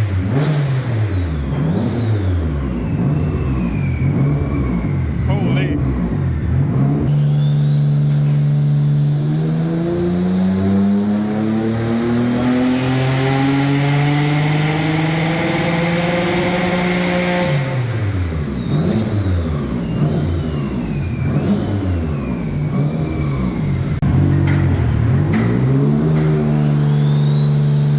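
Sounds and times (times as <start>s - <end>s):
car engine revving on dyno: 0.0s - 27.9s.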